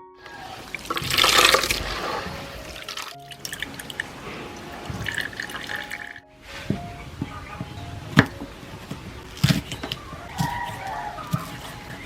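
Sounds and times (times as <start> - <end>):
water splashing and pouring: 0.3 - 6.8
light splashes and drips: 0.5 - 6.2.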